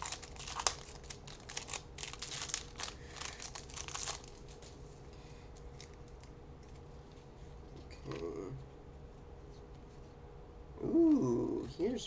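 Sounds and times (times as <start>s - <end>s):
wrapper crinkling: 0.0s - 4.8s.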